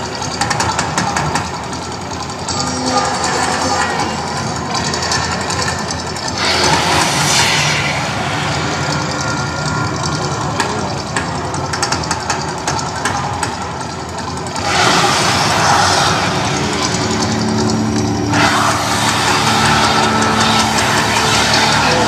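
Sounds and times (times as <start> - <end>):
rushing surges of noise: 0.0 - 22.0
volcano show low rumble: 2.7 - 11.7, 14.5 - 22.0.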